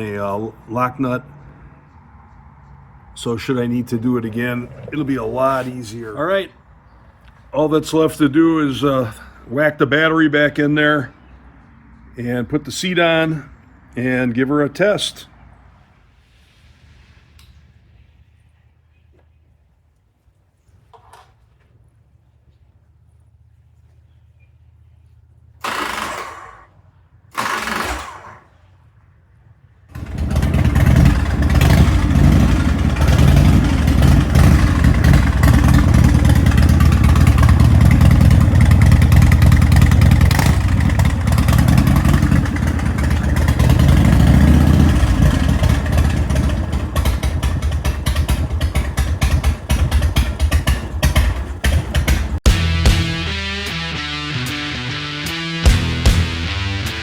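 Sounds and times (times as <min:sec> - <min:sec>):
motorcycle engine starting and running: 0:00.0 - 0:06.4, 0:24.7 - 0:57.0.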